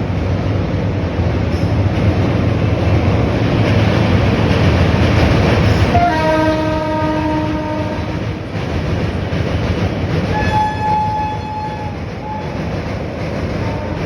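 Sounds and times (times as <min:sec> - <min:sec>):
train rumbling: 0:00.0 - 0:14.0
locomotive horn blast: 0:05.9 - 0:08.2, 0:10.3 - 0:12.6.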